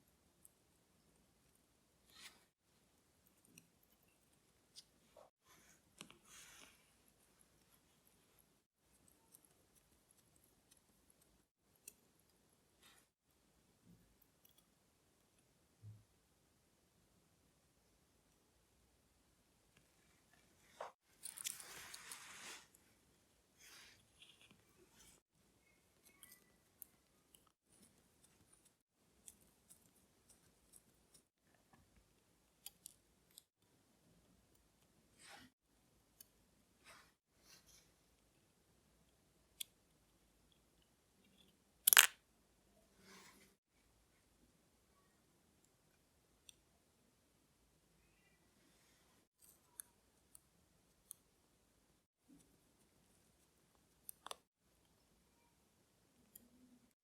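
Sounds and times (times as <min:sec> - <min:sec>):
faint small clicks: 0:54.0 - 0:54.5.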